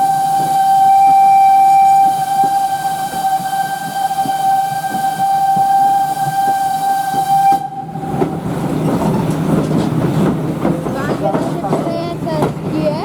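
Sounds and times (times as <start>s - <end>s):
steam whistle: 0.0s - 8.2s
moving train rumble: 0.0s - 13.0s.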